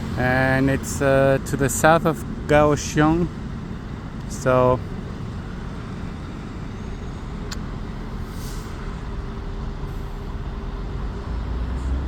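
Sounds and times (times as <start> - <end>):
heavy road traffic rumbling: 0.0 - 12.0.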